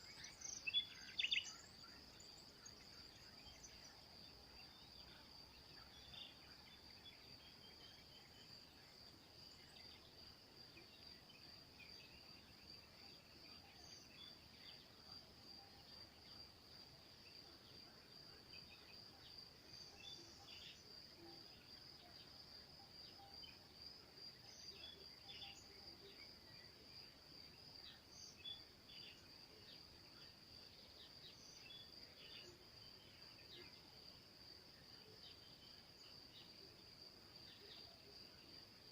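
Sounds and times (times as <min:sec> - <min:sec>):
bird chirps: 0:00.0 - 0:04.0
high-pitched insect chorus: 0:00.0 - 0:38.9.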